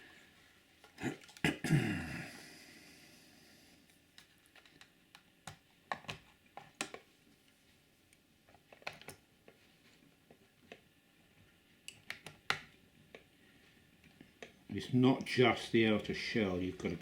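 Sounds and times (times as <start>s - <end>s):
plastic clicks and taps: 4.2s - 7.1s, 11.9s - 13.3s.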